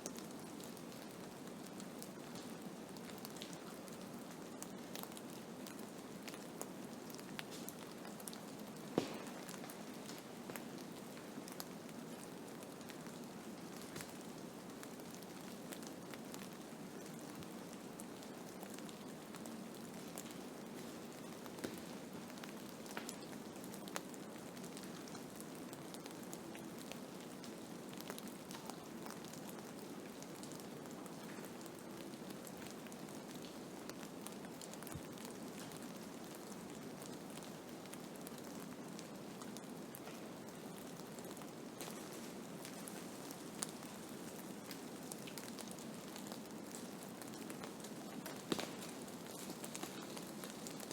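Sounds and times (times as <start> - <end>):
rain pattering on a surface: 0.0 - 50.9
snow ticking on a surface: 46.7 - 50.9.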